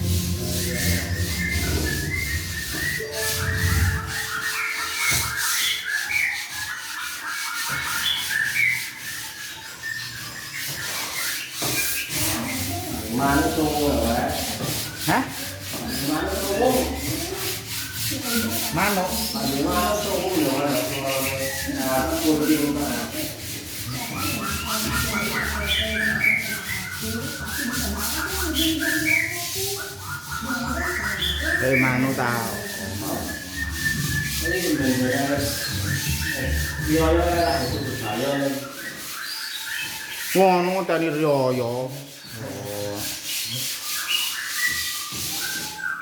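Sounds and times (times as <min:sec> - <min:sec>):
scratchy rubbing noise: 0:00.0 - 0:46.0
songbird chirping: 0:00.0 - 0:46.0
short whistled notes: 0:00.7 - 0:06.0.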